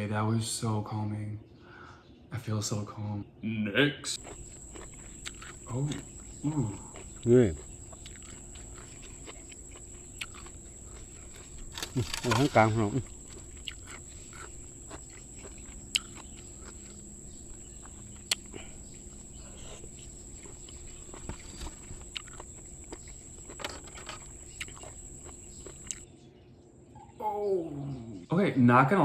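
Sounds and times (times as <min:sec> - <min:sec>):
faint hum: 0:00.0 - 0:26.2, 0:26.8 - 0:29.0
clicks of snails being eaten: 0:04.2 - 0:17.0, 0:17.8 - 0:26.1.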